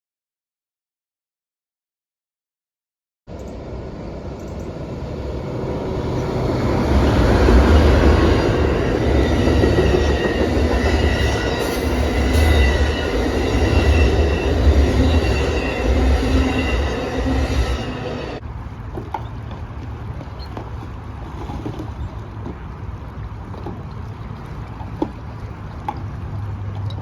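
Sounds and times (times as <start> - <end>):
train wheels rumbling on rail: 3.3 - 22.8
high wheel squeal: 5.9 - 18.4.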